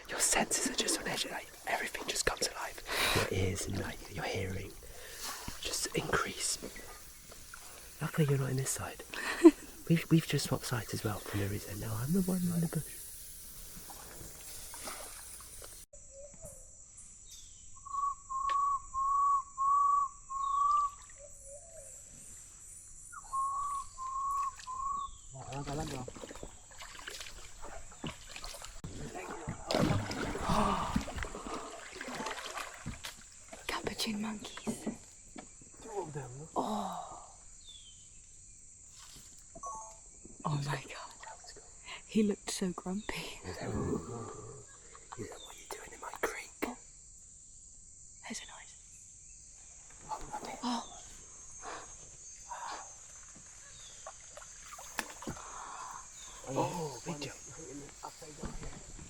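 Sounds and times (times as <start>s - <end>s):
rustling leaves and branches: 0.0s - 15.9s, 24.3s - 39.5s, 49.4s - 59.0s
insects droning: 0.0s - 59.0s
canoe paddles splashing in water: 25.5s - 33.8s
paddles knocking against hull: 25.5s - 35.6s.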